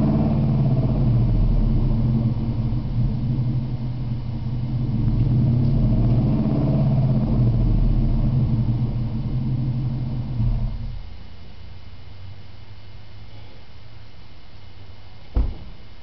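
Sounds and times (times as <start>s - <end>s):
engine exhaust rumble: 0.0s - 16.0s.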